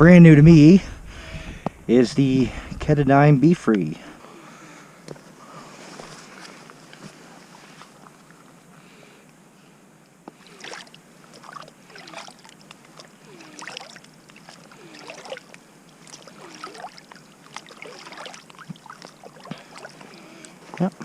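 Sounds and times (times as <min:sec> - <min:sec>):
canoe paddle splashing water: 0:10.3 - 0:21.0.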